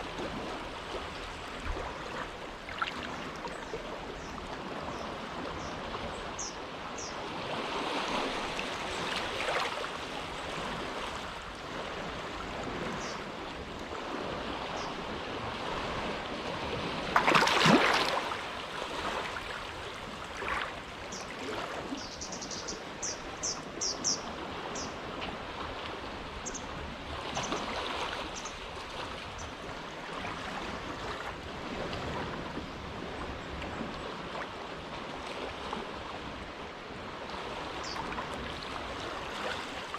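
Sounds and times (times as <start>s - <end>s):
small waves lapping at shore: 0.0s - 39.9s.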